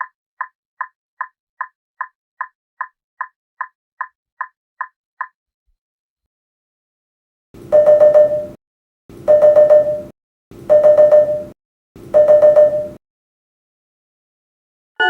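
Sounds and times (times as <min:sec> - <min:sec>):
in-car alert chime: 0:07.7 - 0:08.6, 0:09.3 - 0:10.1, 0:10.7 - 0:11.6, 0:12.2 - 0:13.0.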